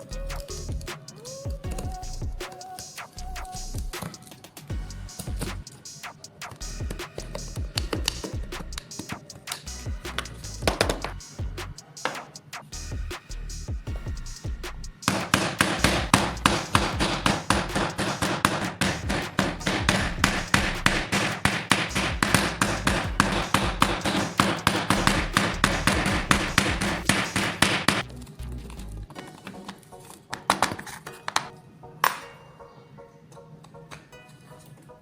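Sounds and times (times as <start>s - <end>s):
rapid sharp knocks: 15.1s - 28.0s.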